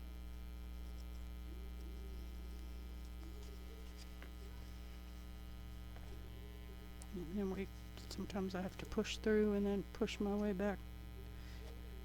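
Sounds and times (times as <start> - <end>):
electrical mains hum: 0.0 - 12.0
faint ticks of paper handling: 0.8 - 6.3.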